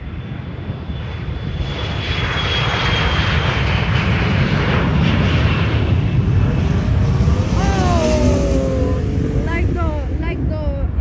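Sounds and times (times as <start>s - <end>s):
jet airliner engines rushing: 0.0s - 11.0s
high whine falling in pitch: 4.0s - 10.1s.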